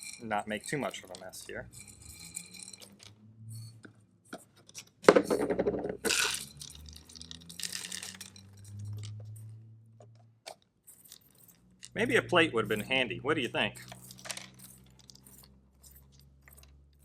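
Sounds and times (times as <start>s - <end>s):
popcorn rattling against glass: 0.0s - 3.2s, 4.7s - 9.4s, 10.9s - 13.0s, 13.7s - 17.0s.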